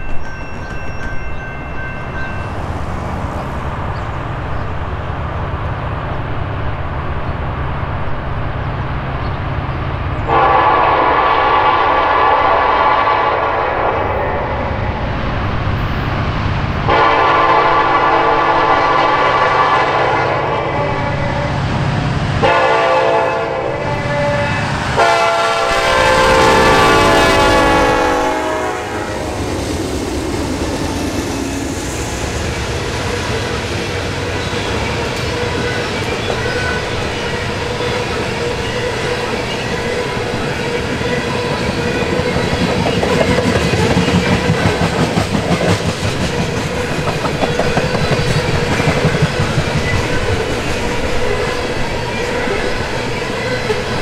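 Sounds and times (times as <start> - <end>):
locomotive horn blasts: 10.3 - 14.8, 16.9 - 21.6, 22.4 - 29.5
wheels clacking over rail joints: 32.6 - 54.0.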